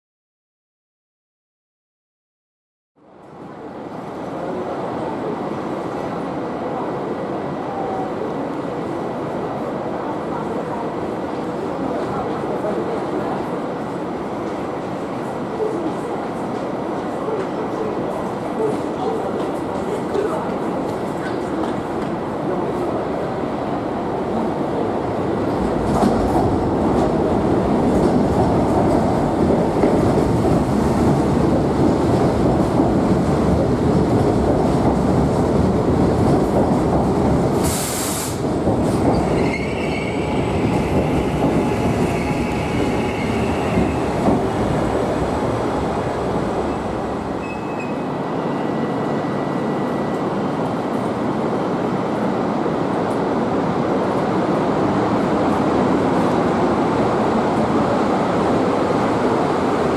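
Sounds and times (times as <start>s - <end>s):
train wheels rumbling on rails: 10.7s - 59.9s
sharp hiss: 37.6s - 38.5s
high squeal: 39.2s - 40.8s, 47.4s - 48.9s.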